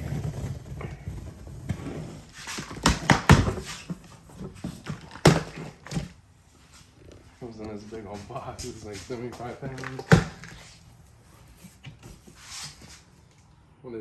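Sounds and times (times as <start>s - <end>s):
cardboard box rustling and scraping: 0.0s - 6.1s
cardboard box thumps: 2.5s - 6.1s.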